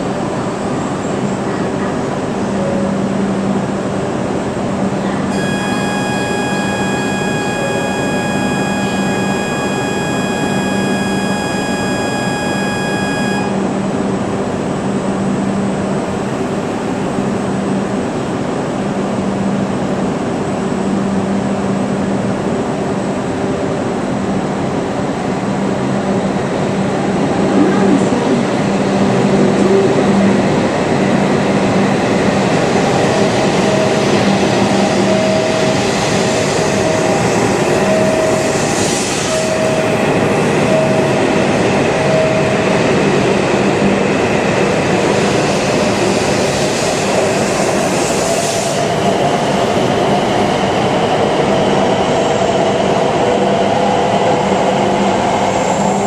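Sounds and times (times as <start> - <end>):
train pulling away: 0.0 - 14.7, 22.2 - 56.0
train equipment hum: 0.0 - 56.0
steady electronic tone: 2.5 - 14.2, 25.6 - 49.1.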